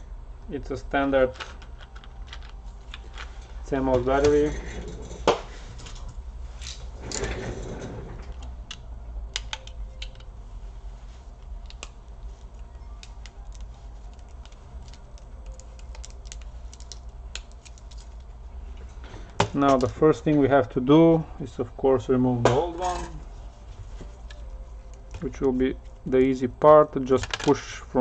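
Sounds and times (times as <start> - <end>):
steady low hum: 0.0 - 28.0
small parts clicking and tapping: 1.3 - 3.4, 8.3 - 10.3, 11.4 - 18.3.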